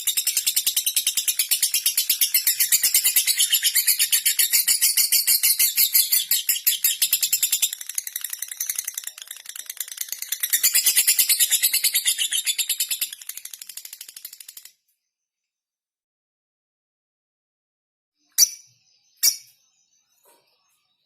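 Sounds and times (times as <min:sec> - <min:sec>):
lovebird singing rapid ticking notes: 0:00.0 - 0:14.7.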